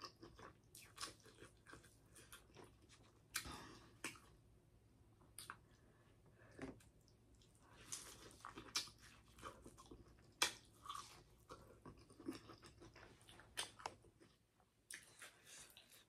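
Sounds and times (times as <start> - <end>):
chewing with wet clicks: 0.0 - 4.4, 5.2 - 5.8, 6.8 - 16.0.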